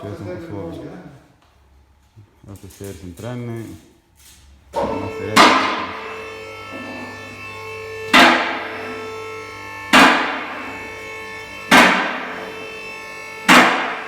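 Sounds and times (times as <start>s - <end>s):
ringing metallic strikes: 4.8s - 14.0s.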